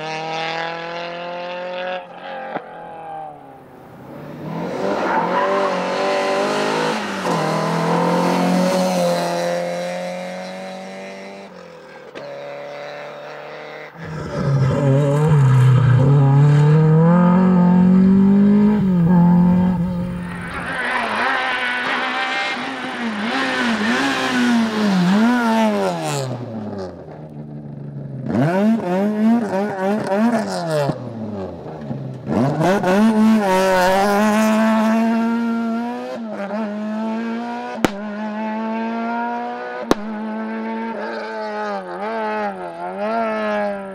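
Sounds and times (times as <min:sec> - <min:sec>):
rally car engines revving: 0:00.0 - 0:43.9.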